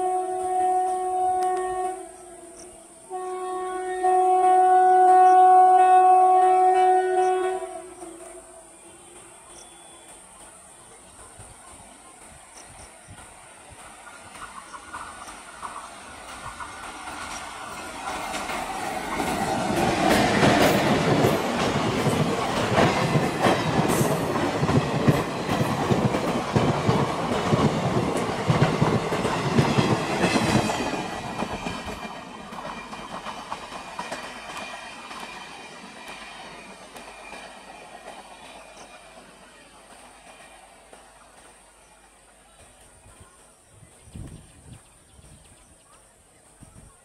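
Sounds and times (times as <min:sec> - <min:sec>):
train wheels clattering over rails: 0:09.0 - 0:42.0.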